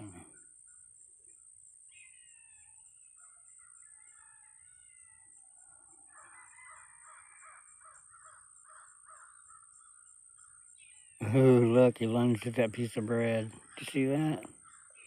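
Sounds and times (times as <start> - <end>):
faint birdsong: 0.0 - 15.0
crow cawing: 6.2 - 10.0.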